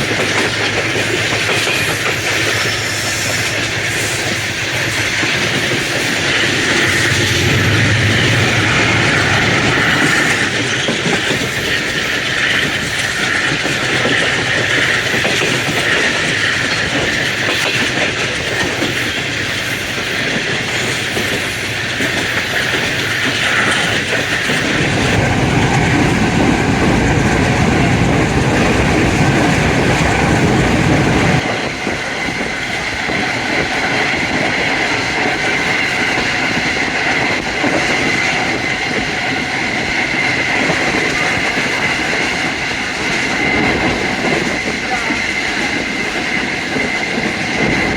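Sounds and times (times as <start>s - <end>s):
diesel locomotive engine: 0.0s - 47.9s
train wheels on rails: 0.0s - 47.9s
heavy low rumble: 5.4s - 11.5s, 24.6s - 31.4s.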